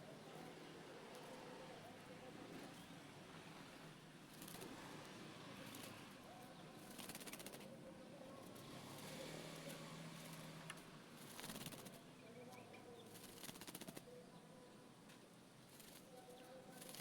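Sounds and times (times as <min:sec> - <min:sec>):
bird wings fluttering: 0:04.3 - 0:04.7, 0:06.8 - 0:07.7, 0:11.2 - 0:12.0, 0:13.1 - 0:14.0, 0:15.7 - 0:16.2, 0:16.8 - 0:17.0.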